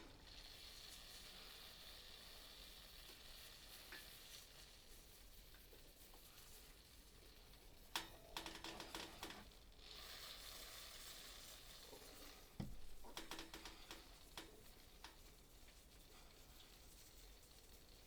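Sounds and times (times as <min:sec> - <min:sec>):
faint clicking and rattling: 0:00.0 - 0:18.0
soft steady hiss: 0:00.0 - 0:18.0.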